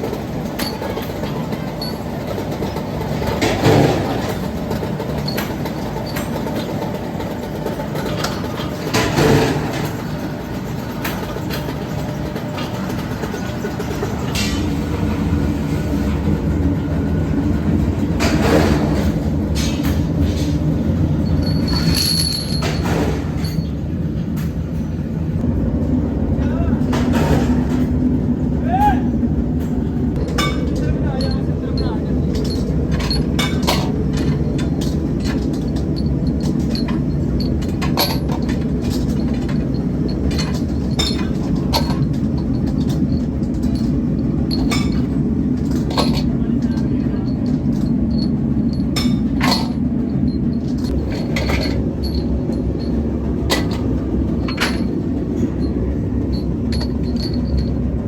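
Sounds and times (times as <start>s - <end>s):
metal clatters: 0.0s - 13.6s, 18.2s - 23.8s, 30.2s - 58.0s
workshop machinery humming: 0.0s - 58.0s
metallic clinks and clanks: 0.1s - 10.2s, 18.2s - 23.8s, 30.2s - 58.0s.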